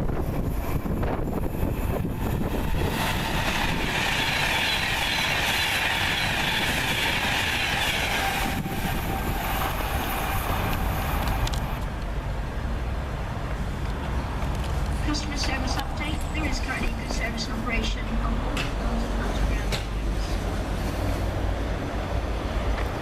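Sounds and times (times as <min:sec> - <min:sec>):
train low rumble: 0:00.0 - 0:23.0
train rushing hiss: 0:00.2 - 0:11.8.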